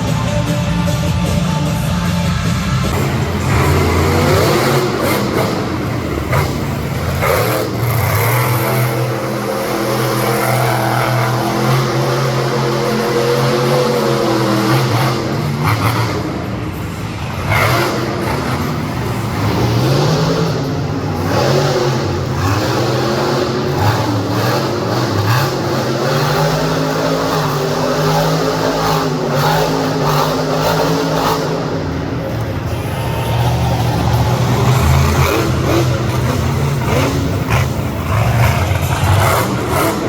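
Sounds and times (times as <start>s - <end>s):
truck engine revving loudly: 0.0s - 40.0s.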